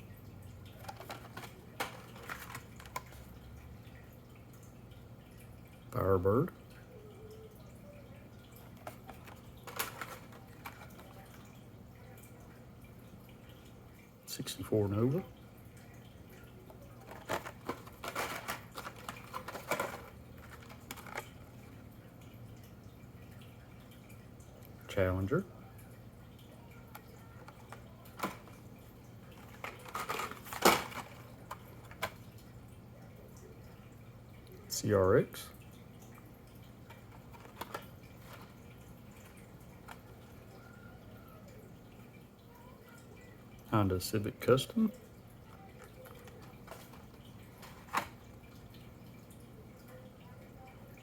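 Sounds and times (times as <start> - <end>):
faint low hum: 0.0 - 51.0
toy cars clicking and tapping: 0.7 - 3.3, 8.6 - 11.4, 16.6 - 21.4, 26.8 - 28.6, 29.4 - 32.2, 37.0 - 38.6.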